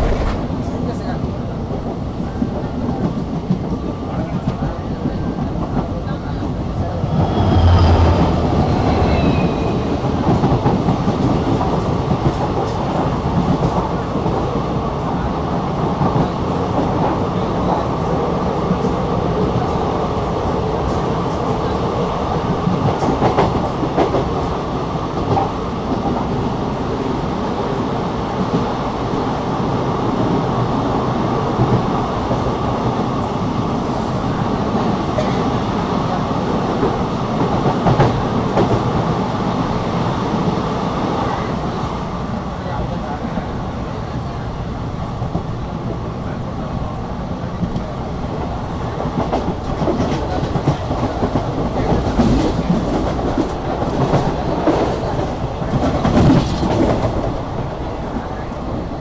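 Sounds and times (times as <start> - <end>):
train wheels rumbling on rails: 0.0 - 59.0
rail joint clicks: 47.5 - 58.8.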